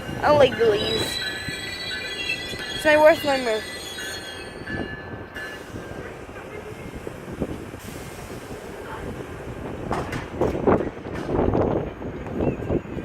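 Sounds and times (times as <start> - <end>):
train rumbling slowly: 0.0 - 13.0
train wheel squeal: 0.4 - 6.1.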